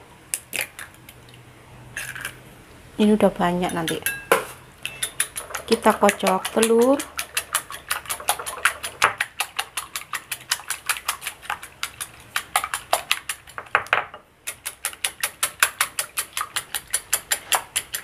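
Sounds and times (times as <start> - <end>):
whisk clicking against glass bowl: 3.6 - 18.0.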